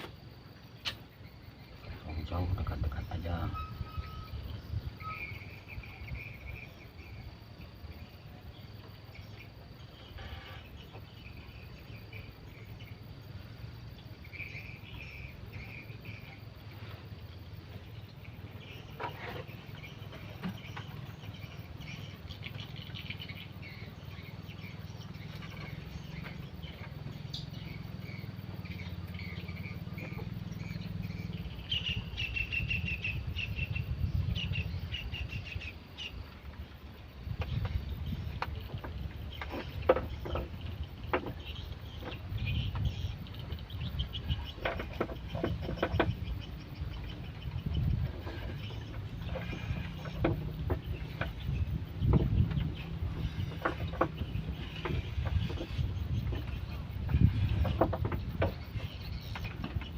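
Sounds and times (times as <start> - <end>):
insects chirping in trills: 0.0 - 59.9
thin steady high tone: 1.8 - 6.1.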